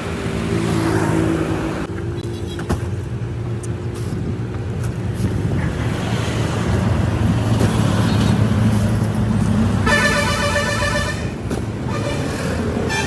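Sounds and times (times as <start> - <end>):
vehicle engine rumbling: 0.0 - 13.0
vehicle horn: 9.8 - 11.3, 11.9 - 13.0.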